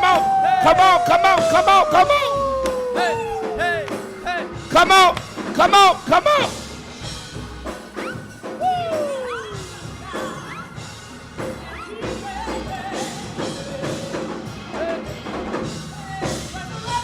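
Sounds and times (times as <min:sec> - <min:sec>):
drum hits: 0:00.0 - 0:10.5
live gospel band music: 0:00.0 - 0:17.0.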